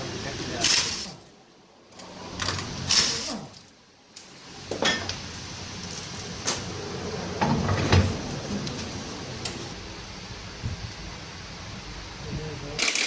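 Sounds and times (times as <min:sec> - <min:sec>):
short hiss: 0:00.6 - 0:01.2, 0:02.9 - 0:03.5
metal tools clinking: 0:04.8 - 0:06.7, 0:12.8 - 0:13.0.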